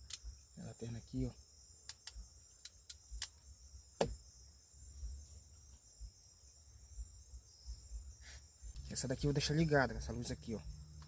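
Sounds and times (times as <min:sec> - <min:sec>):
sharp clicks: 0:00.0 - 0:00.3, 0:01.9 - 0:03.4
crickets chirring: 0:00.0 - 0:11.0.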